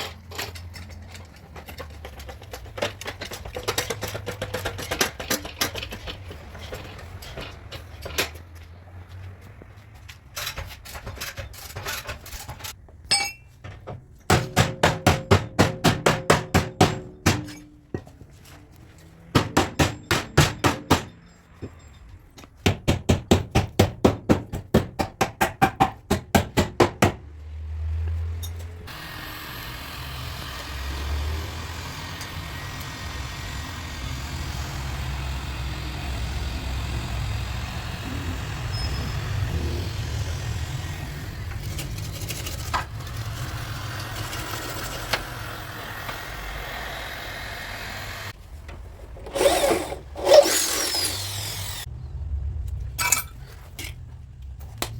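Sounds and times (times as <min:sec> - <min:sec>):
hammer tapping on sheet metal: 0:14.3 - 0:17.6, 0:19.3 - 0:21.1, 0:22.6 - 0:27.2.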